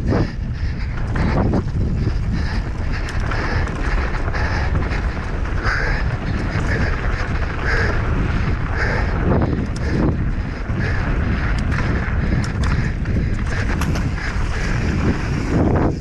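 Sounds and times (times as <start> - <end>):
bike clicks and rattles: 0.0 - 16.0
wind buffeting microphone: 0.0 - 16.0.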